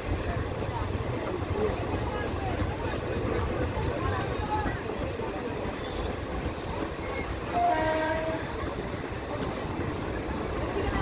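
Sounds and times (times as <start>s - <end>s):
train wheels rumbling on track: 0.0s - 11.0s
train horn: 7.5s - 8.6s.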